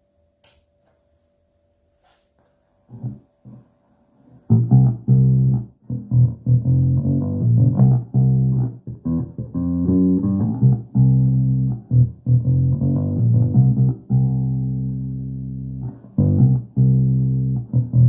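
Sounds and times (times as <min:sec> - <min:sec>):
electric bass guitar notes: 0:04.5 - 0:18.0.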